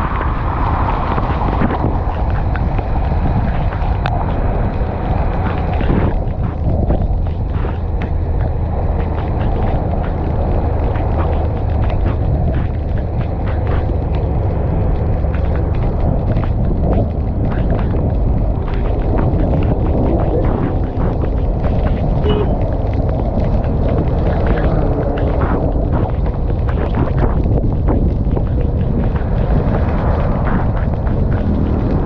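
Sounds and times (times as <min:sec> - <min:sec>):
road noise: 0:00.0 - 0:32.0
wind buffeting microphone: 0:00.0 - 0:32.0
motorcycle engine: 0:00.8 - 0:23.8.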